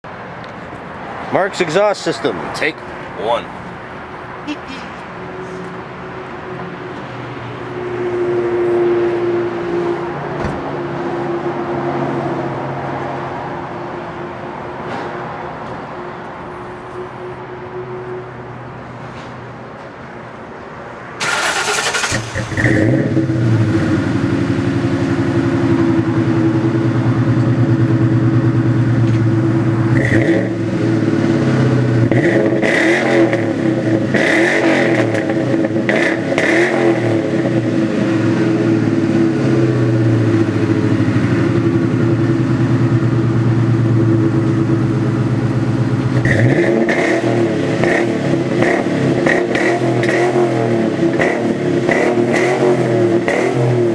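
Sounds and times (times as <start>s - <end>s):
engine revving: 21.2s - 25.7s, 29.6s - 41.0s, 46.1s - 53.9s
car engine idling: 21.2s - 32.2s, 37.5s - 46.5s
car engine starting: 21.2s - 53.9s.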